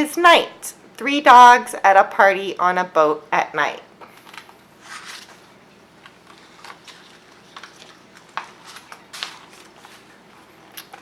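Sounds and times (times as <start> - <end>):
paper rustling: 4.2 - 11.0.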